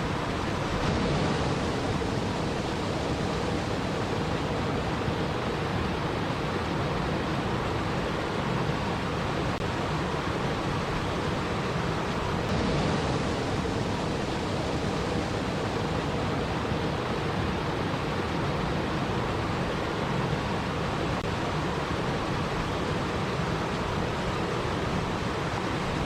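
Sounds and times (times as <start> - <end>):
water rushing: 0.0 - 26.0.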